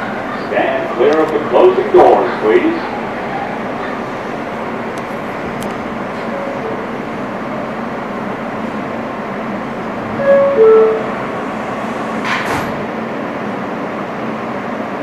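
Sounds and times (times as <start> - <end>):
subway train rumble: 0.0 - 15.0
two-note door chime: 6.2 - 6.9, 10.2 - 11.2.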